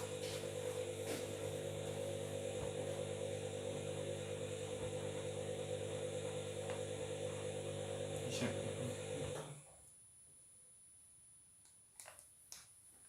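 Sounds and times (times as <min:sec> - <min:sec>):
washing machine motor hum: 0:00.0 - 0:09.7.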